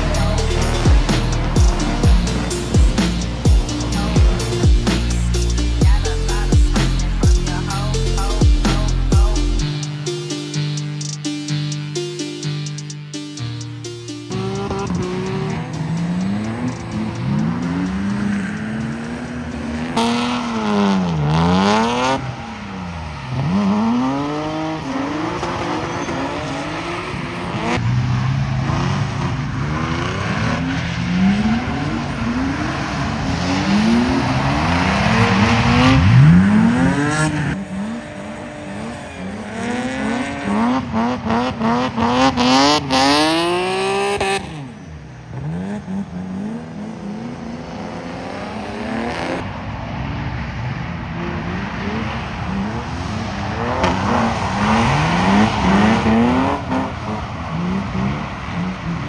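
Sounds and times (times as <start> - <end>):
car engines revving: 0.0 - 59.0
tyre squeal: 25.6 - 26.8, 36.1 - 40.3.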